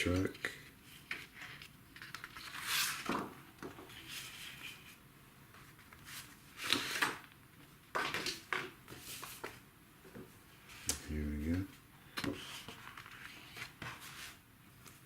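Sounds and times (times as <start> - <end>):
paper rustling: 0.1 - 7.3, 12.2 - 15.0.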